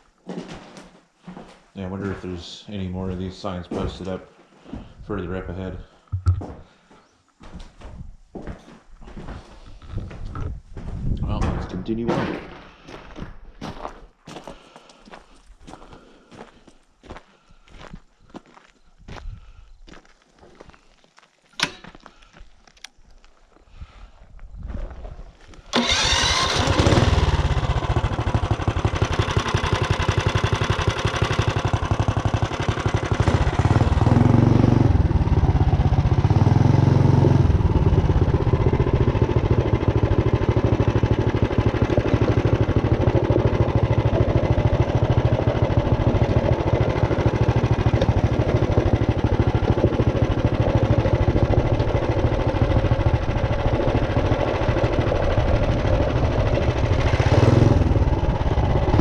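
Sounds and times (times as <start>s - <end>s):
small engine running: 25.7s - 59.0s.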